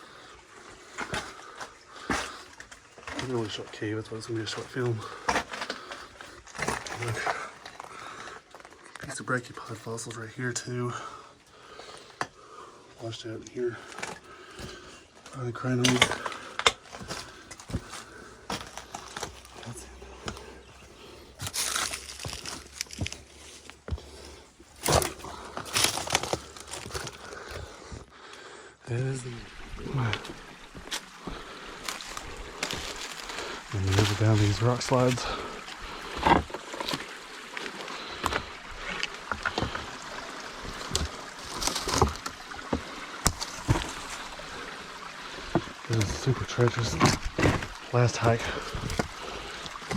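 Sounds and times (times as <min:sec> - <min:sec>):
scrambling over rock and debris: 0:00.0 - 0:28.2, 0:29.3 - 0:49.9
small stream rushing: 0:28.9 - 0:49.9.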